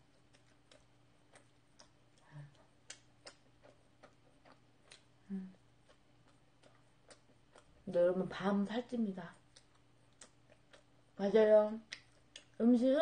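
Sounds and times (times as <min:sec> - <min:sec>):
chewing mouth clicks: 0:00.0 - 0:07.8, 0:09.3 - 0:11.2, 0:11.8 - 0:12.6
closed-mouth hum: 0:00.0 - 0:13.0.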